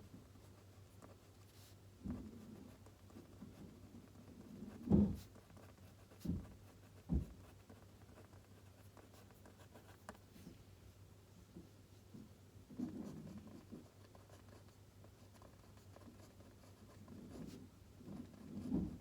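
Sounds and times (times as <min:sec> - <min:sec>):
pen scratching on paper: 0:00.5 - 0:10.2, 0:12.8 - 0:19.0
soft knocks on desk: 0:06.2 - 0:07.5.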